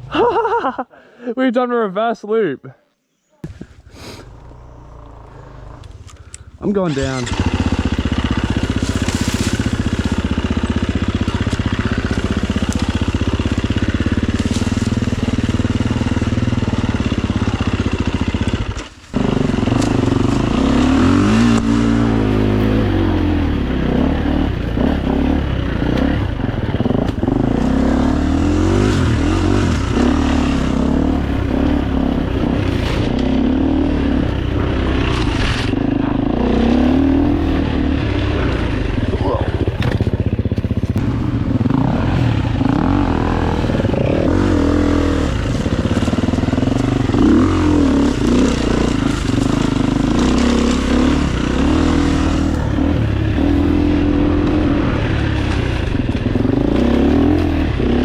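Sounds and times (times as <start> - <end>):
dirt bike engine revving: 6.6 - 58.0.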